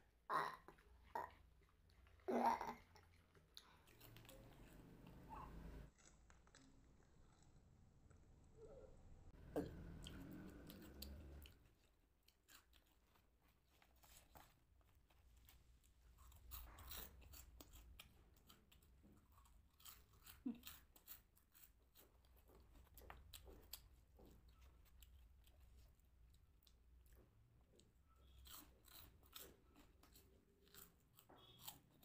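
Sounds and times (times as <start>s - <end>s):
chewing crunchy snacks: 0.4s - 7.7s, 9.4s - 32.0s.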